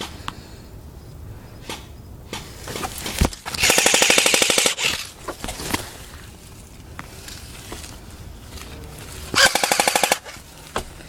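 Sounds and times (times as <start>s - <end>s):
airsoft gun full-auto burst: 3.6s - 5.1s, 9.4s - 10.4s
scattered clicks: 9.4s - 10.4s.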